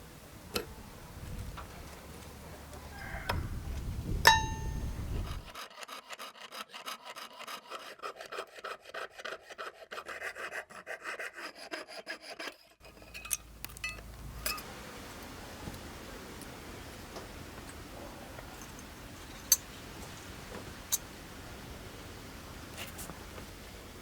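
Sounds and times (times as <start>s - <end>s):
ringing metal clink: 4.3s - 5.3s, 12.9s - 14.7s, 18.5s - 20.2s
hand tool rasping metal: 4.3s - 14.7s.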